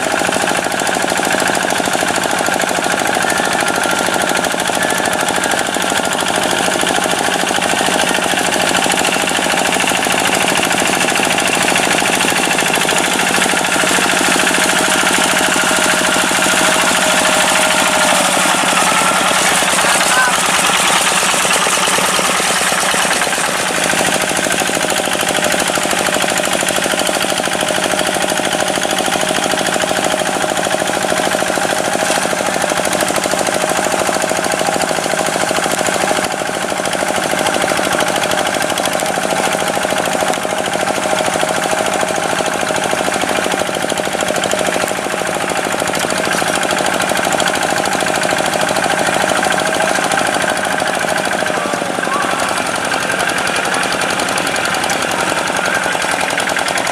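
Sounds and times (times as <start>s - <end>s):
tractor diesel engine clattering: 0.0s - 56.9s.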